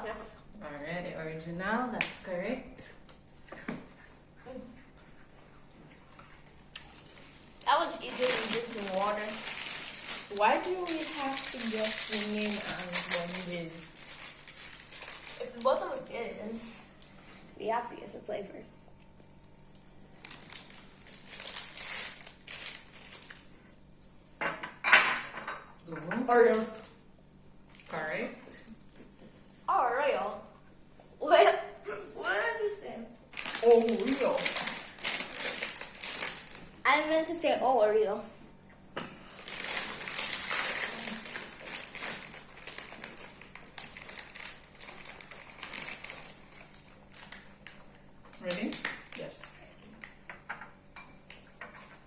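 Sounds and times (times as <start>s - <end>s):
plastic packaging crinkling: 6.7s - 16.4s, 19.9s - 23.5s, 33.3s - 36.9s, 39.3s - 50.2s.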